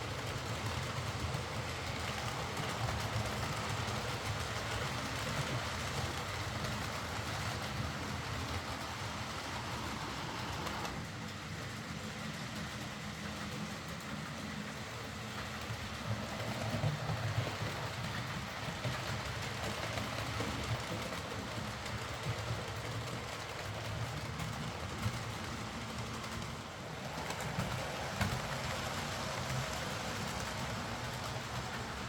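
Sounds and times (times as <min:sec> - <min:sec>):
wheel and rail noise: 0:00.0 - 0:32.0
model train motor whirr: 0:02.0 - 0:11.1.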